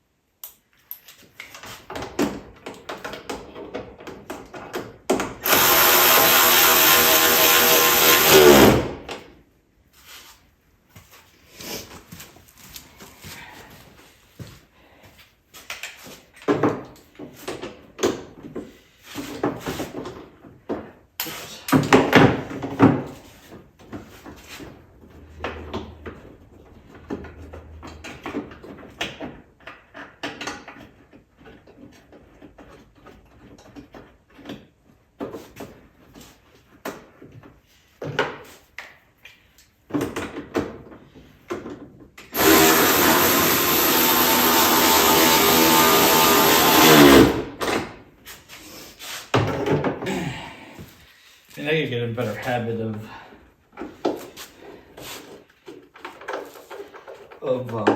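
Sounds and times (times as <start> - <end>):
tools and parts clattering: 55.3 - 57.9.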